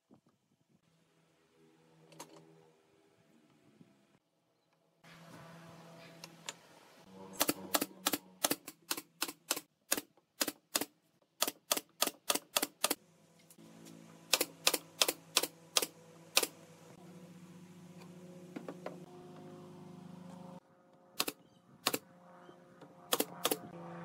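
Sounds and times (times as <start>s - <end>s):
low hum: 0.7s - 9.6s, 13.0s - 24.0s
nail gun firing: 7.4s - 13.0s, 14.3s - 16.6s, 21.2s - 22.0s, 23.1s - 23.7s.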